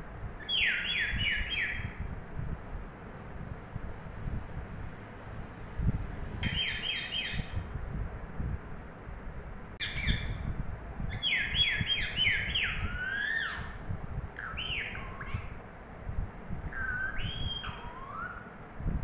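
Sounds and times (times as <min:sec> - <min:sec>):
parrot chirping: 0:00.4 - 0:02.0, 0:06.4 - 0:07.6, 0:09.8 - 0:10.4, 0:11.1 - 0:13.8, 0:14.4 - 0:15.6, 0:16.7 - 0:18.6.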